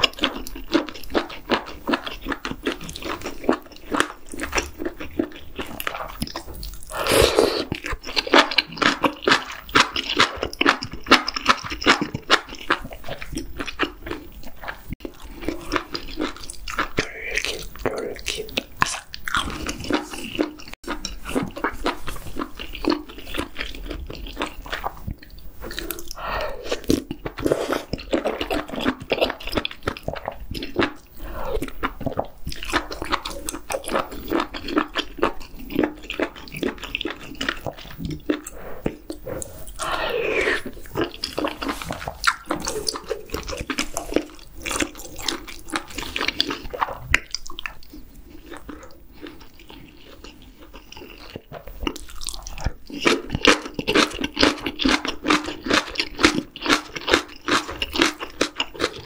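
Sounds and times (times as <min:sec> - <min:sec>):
slurping noodles: 0:00.0 - 0:25.0, 0:25.6 - 0:47.2
wet chewing: 0:00.0 - 0:59.0.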